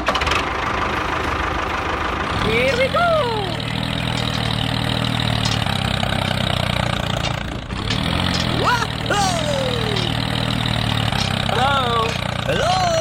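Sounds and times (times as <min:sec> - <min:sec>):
small tractor engine running: 0:00.0 - 0:13.0
person exclaiming: 0:02.6 - 0:03.6, 0:08.6 - 0:10.1, 0:11.5 - 0:13.0.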